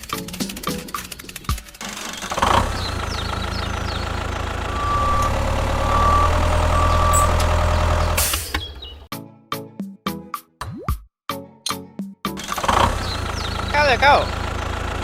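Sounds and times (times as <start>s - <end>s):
heavy vehicle engine running: 1.8s - 9.1s, 12.4s - 15.0s
reversing alarm beeps: 4.7s - 8.2s.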